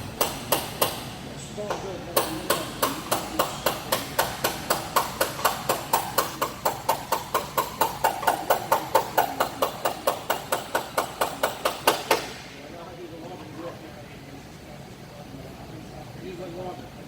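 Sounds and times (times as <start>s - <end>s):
hammer striking metal: 0.0s - 1.2s, 2.2s - 12.4s.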